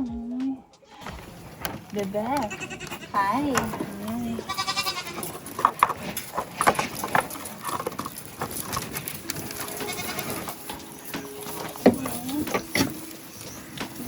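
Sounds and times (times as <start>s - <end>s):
rustling: 0.9s - 14.0s
goat bleating: 2.2s - 5.6s, 9.6s - 10.6s.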